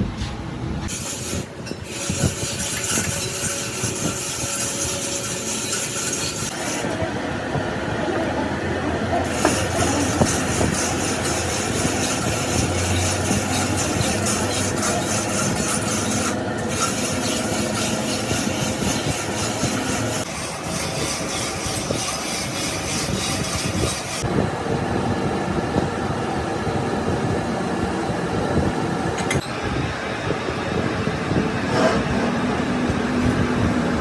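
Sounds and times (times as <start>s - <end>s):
metal rasping and rubbing: 0.9s - 7.0s, 9.2s - 24.3s, 31.7s - 32.4s.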